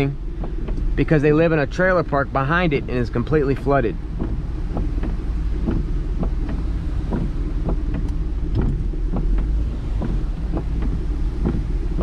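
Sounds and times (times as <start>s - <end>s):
car driving through floodwater: 0.0s - 12.0s
wind and rain: 0.0s - 12.0s.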